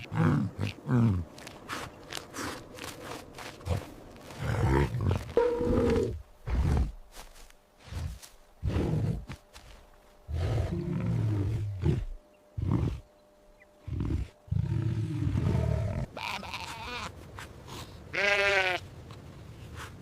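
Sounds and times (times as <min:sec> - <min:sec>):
low rough animal calls: 0:03.7 - 0:07.0
sheep bleating: 0:16.1 - 0:17.1, 0:18.1 - 0:18.8.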